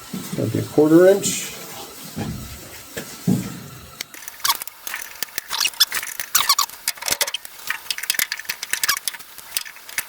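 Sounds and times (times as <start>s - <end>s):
hand ratchet clicking: 4.0s - 10.0s
bolt squeaking: 5.5s - 9.3s.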